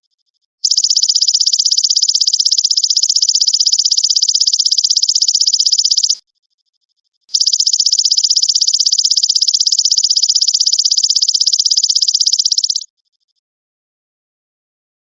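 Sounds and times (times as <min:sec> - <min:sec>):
grasshopper buzzing trill: 0:00.6 - 0:06.2, 0:07.3 - 0:12.8.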